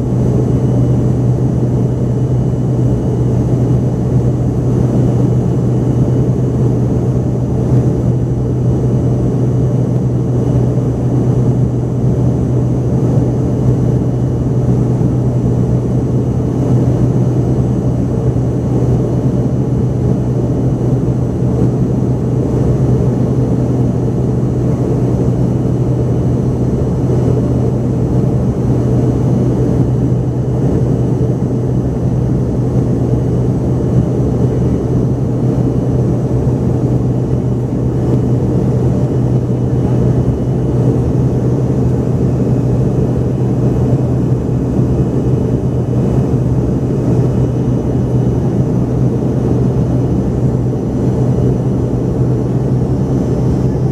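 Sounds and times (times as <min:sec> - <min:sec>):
faint high engine whine: 0:00.0 - 0:53.9
jet engines droning in cabin: 0:00.0 - 0:53.9.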